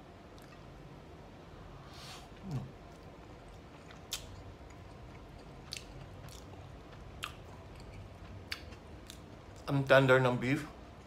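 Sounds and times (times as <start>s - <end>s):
person chewing food: 2.4s - 9.7s.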